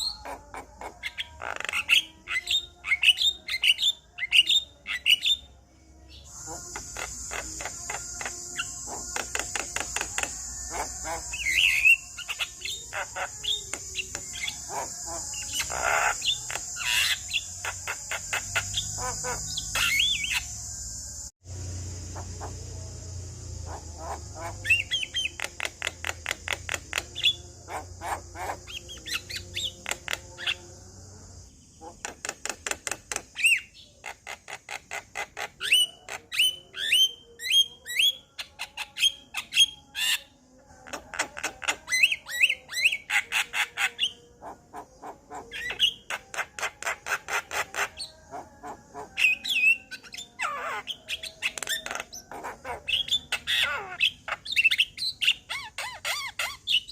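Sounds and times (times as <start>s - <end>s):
bird singing clicks and whistles: 9.1s - 10.4s, 32.0s - 33.6s.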